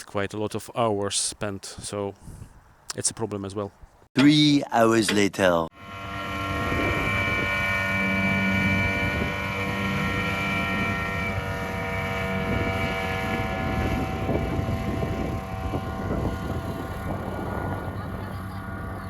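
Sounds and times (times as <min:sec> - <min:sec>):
aircraft engine droning: 0:05.8 - 0:19.0.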